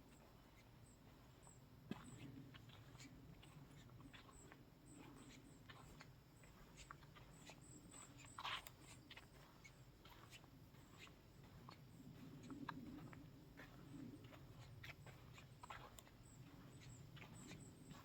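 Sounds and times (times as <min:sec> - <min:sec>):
light ticks: 0:05.2 - 0:11.8.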